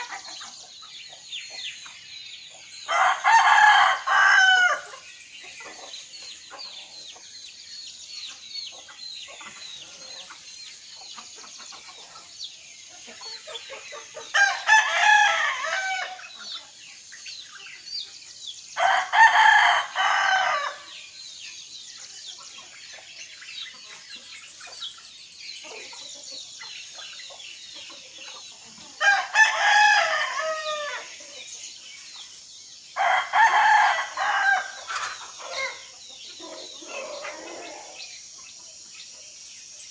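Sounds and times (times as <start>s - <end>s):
songbirds chirping: 0.0s - 39.9s
rooster crowing: 2.9s - 4.9s, 14.3s - 16.2s, 18.8s - 20.9s, 29.0s - 31.1s, 33.0s - 34.8s, 36.4s - 38.0s.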